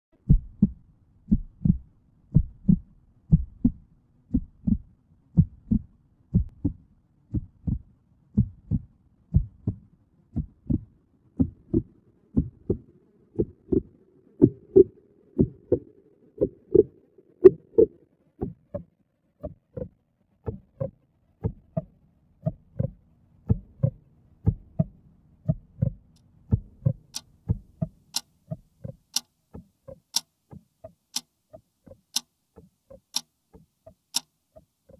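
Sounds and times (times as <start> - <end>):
heartbeat thumps: 0.2 - 16.9, 20.5 - 24.9, 25.5 - 29.0
clock ticking: 25.8 - 29.3, 32.9 - 34.3.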